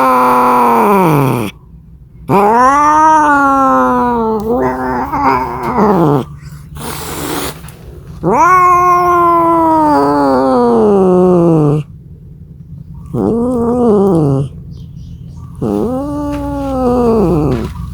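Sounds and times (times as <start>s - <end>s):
cat yowling: 0.0s - 1.6s, 2.3s - 7.6s, 8.2s - 11.9s, 13.1s - 14.6s, 15.6s - 17.9s
breathy noise: 3.3s - 11.9s, 15.6s - 17.9s.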